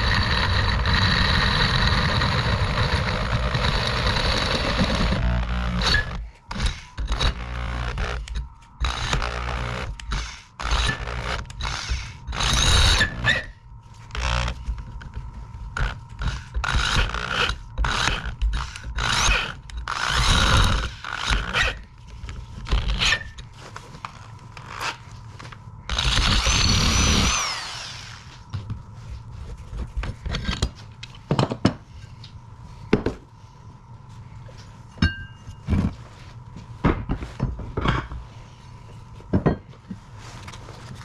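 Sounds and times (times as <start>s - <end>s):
power drill running: 0.0s - 13.5s, 16.2s - 21.8s, 25.9s - 28.4s
tool scraping metal: 0.0s - 14.7s, 15.8s - 21.9s, 22.6s - 23.5s.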